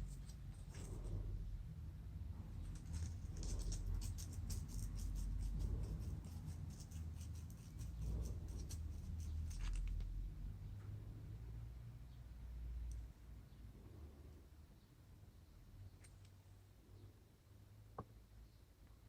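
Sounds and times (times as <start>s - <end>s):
steady low hum: 0.0s - 18.1s
light scratching and ticking: 2.6s - 10.1s.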